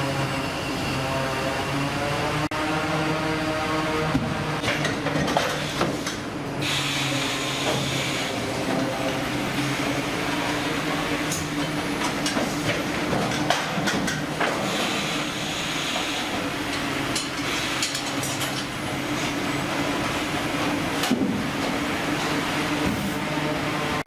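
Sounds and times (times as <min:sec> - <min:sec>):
machinery drone: 0:00.0 - 0:04.9.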